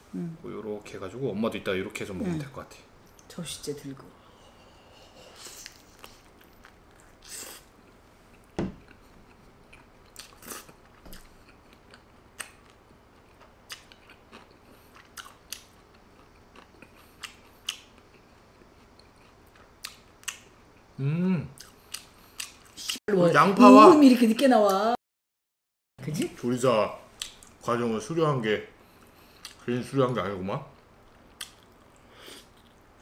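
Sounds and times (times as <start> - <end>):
man chewing food: 4.3 - 21.0, 21.6 - 23.0, 28.8 - 29.6, 30.7 - 33.0.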